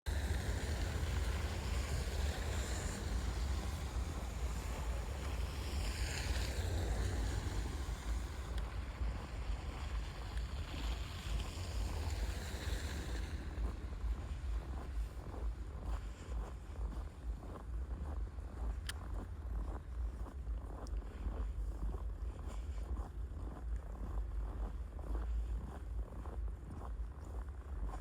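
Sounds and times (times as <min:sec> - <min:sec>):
outdoor noise hiss: 0:00.1 - 0:14.1
wind buffeting microphone: 0:00.1 - 0:19.7.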